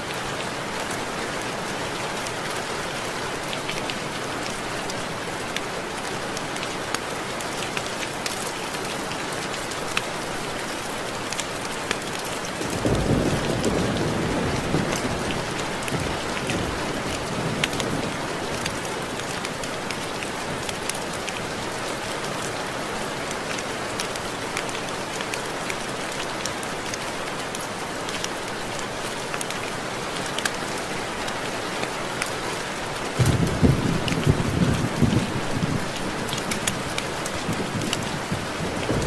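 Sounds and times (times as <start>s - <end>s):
steady rain: 0.0s - 39.0s
raindrops ticking on window glass: 33.2s - 39.0s.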